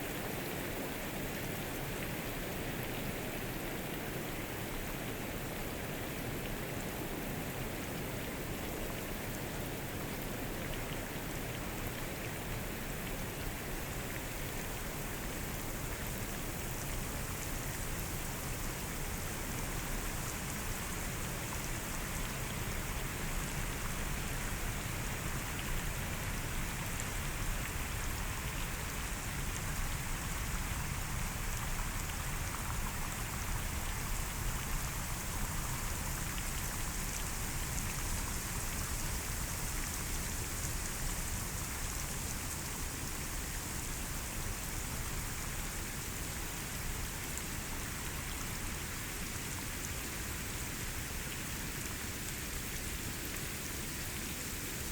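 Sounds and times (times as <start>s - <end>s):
rain falling on foliage: 0.0s - 54.9s.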